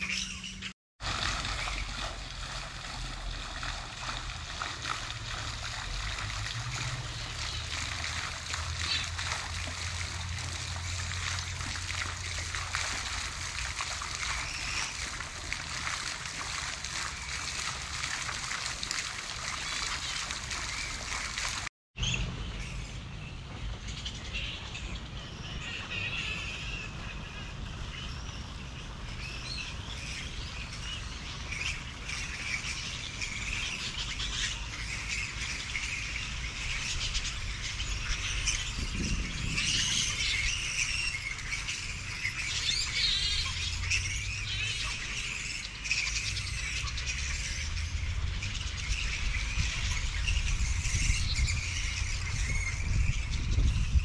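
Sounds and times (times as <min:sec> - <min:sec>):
birds chirping and calling: 0:00.0 - 0:00.7, 0:03.6 - 0:18.4, 0:19.4 - 0:54.0
steady low rumble: 0:01.0 - 0:13.6.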